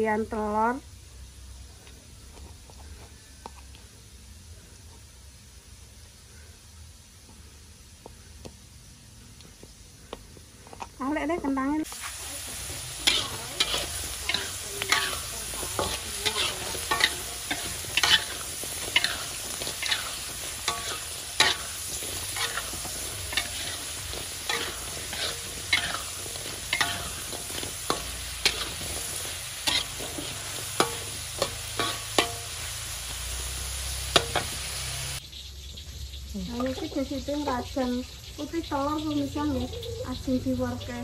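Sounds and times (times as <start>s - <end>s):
potatoes sizzling in oil: 0.0s - 41.0s
metal spatula scraping a pan: 12.0s - 32.8s, 33.6s - 34.8s.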